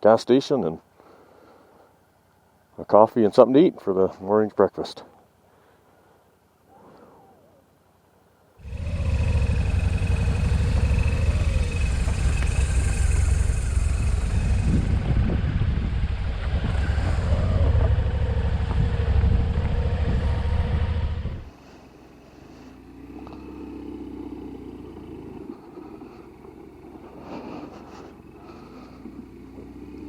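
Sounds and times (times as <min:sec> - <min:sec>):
motorcycle running: 0:08.6 - 0:21.5, 0:22.7 - 0:30.0
wind rumble on microphone: 0:08.6 - 0:21.5.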